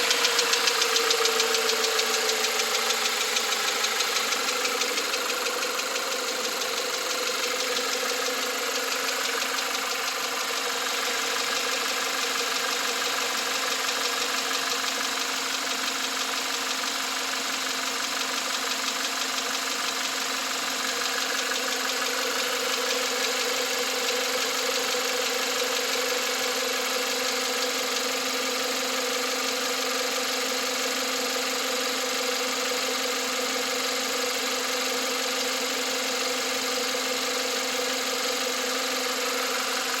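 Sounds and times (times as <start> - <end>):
car engine idling: 0.0 - 40.0
engine knocking and ticking: 0.0 - 40.0.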